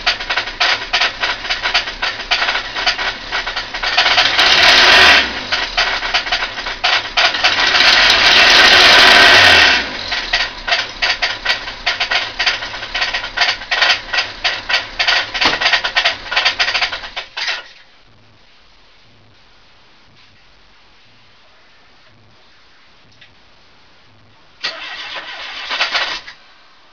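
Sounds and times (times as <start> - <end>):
car engine knocking: 0.0 - 17.4.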